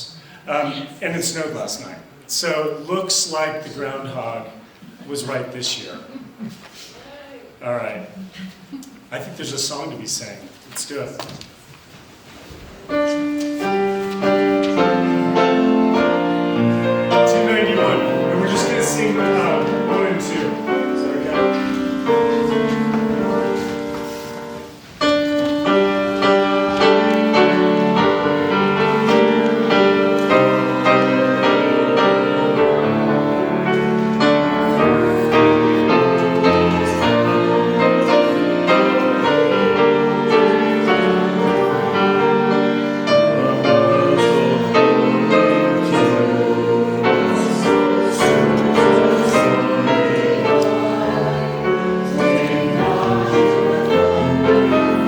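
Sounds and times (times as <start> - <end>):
piano accompaniment: 12.5 - 55.0
congregation singing a hymn: 12.6 - 55.0.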